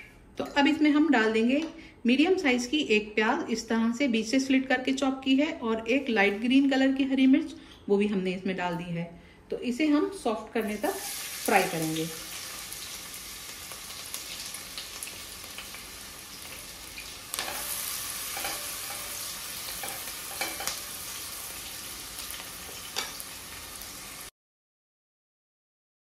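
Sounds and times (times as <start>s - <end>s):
onion sizzling in oil: 10.6s - 24.3s.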